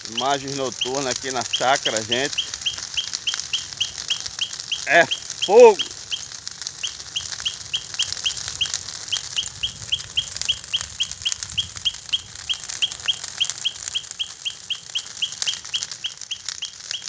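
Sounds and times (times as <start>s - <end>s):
animal chirping: 0.0s - 17.0s
bonfire crackling: 0.0s - 17.0s.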